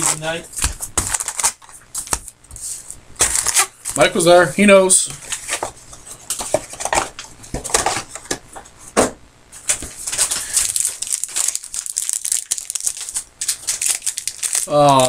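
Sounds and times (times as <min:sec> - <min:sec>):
card pack wrappers crinkling: 0:00.0 - 0:04.0, 0:09.6 - 0:15.0.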